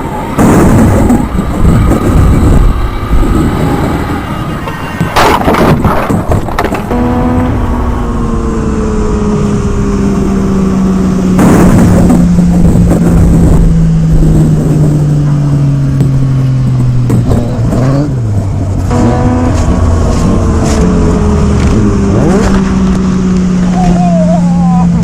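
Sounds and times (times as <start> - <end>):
rushing noise: 0.0 - 25.0
motorcycle engine running: 6.5 - 25.0.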